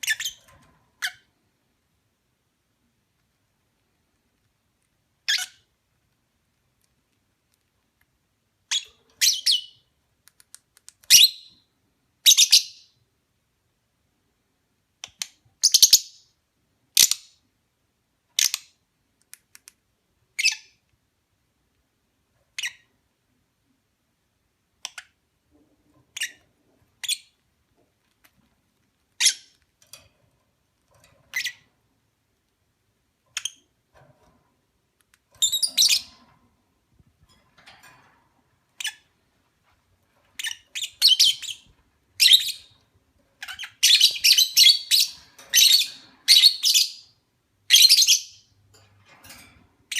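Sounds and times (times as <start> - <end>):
lovebirds chirping: 35.4 - 36.2, 40.4 - 42.8, 43.4 - 48.5.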